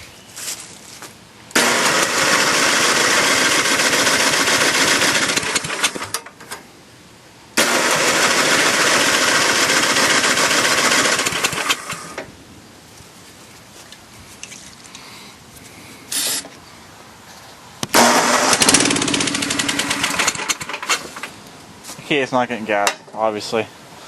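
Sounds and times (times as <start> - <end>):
electric starter cranking engine: 1.5 - 6.6, 7.6 - 12.3, 17.9 - 21.4.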